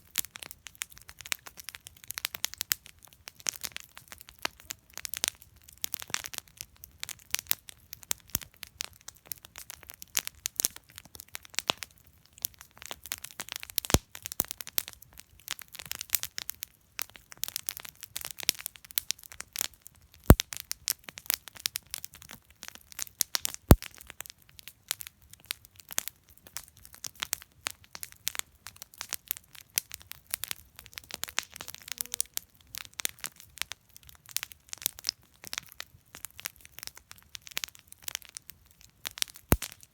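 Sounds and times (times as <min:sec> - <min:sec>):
campfire crackling and popping: 0:00.0 - 0:39.9
loud fire cracks: 0:39.5 - 0:39.9.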